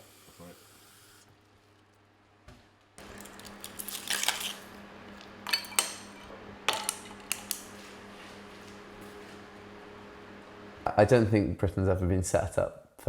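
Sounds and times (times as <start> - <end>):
steady hum: 3.0 - 12.7
kitchenware clinking and knocking: 5.4 - 7.4.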